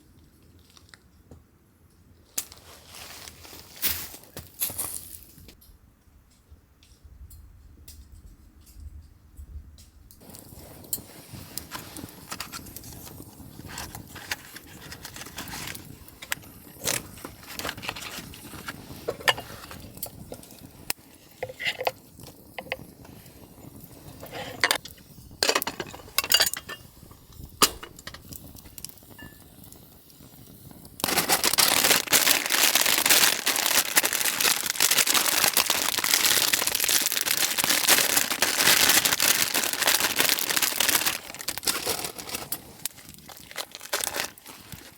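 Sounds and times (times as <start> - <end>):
sharp crackles and snaps: 3.8 - 44.9
packaging crinkling: 11.3 - 20.4, 31.0 - 44.9.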